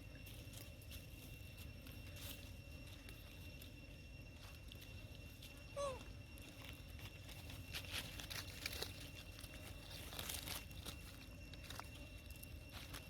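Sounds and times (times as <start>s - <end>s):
crinkling and crunching: 6.4s - 13.0s.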